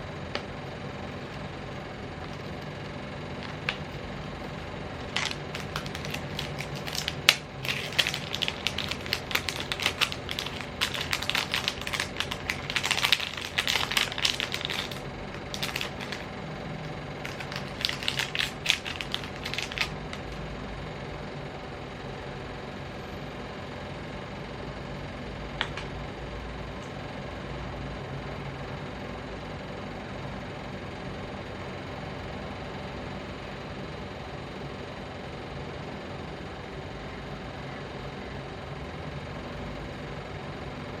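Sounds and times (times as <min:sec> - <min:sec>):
steady low hum: 0:00.0 - 0:29.7
packaging clicks and crinkles: 0:05.0 - 0:20.4, 0:25.6 - 0:25.9.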